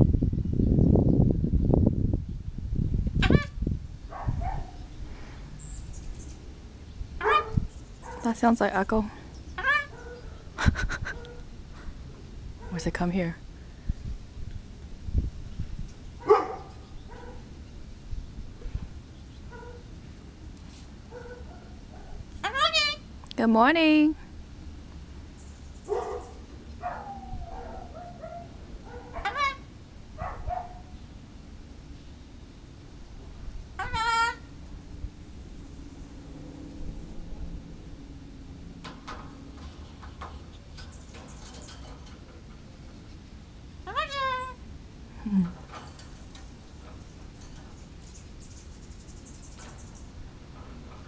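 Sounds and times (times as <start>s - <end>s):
cockatoo squawk: 3.2s - 3.6s, 7.2s - 7.7s, 9.6s - 11.4s, 22.4s - 23.1s, 29.0s - 29.7s, 33.8s - 34.5s, 43.8s - 44.6s
cockatoo calling: 3.2s - 4.9s, 7.2s - 8.3s, 9.5s - 11.5s, 21.1s - 23.1s, 25.9s - 31.0s, 33.8s - 34.6s, 43.8s - 44.8s.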